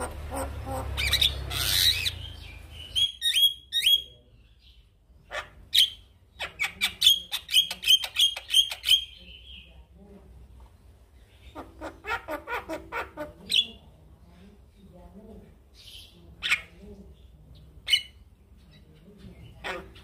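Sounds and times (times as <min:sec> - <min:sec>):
bird chirping notes: 0:00.0 - 0:09.9.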